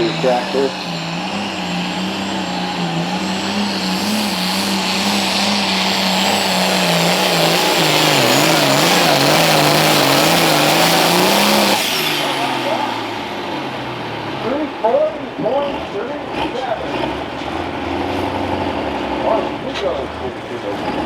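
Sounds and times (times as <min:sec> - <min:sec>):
tractor engine running under load: 0:00.0 - 0:15.6.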